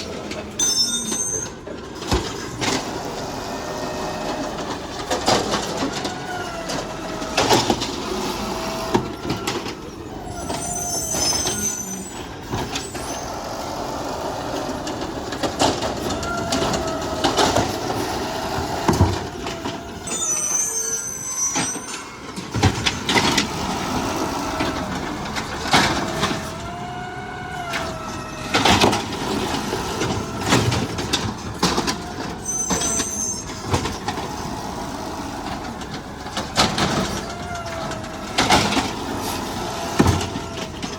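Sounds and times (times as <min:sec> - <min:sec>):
garbage truck engine: 0:00.0 - 0:40.9
hydraulic whine: 0:00.0 - 0:40.9
high squeal: 0:00.6 - 0:01.7, 0:08.4 - 0:14.0, 0:16.0 - 0:23.2, 0:31.6 - 0:34.7
metal clanks and knocks: 0:21.5 - 0:26.8, 0:27.8 - 0:40.9.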